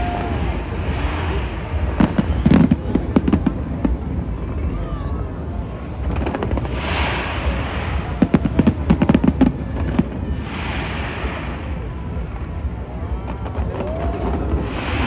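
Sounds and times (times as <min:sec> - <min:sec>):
fireworks bangs: 0:00.0 - 0:04.8, 0:05.8 - 0:15.0
steady low rumble: 0:00.0 - 0:15.0
hissing crackle: 0:06.0 - 0:12.5.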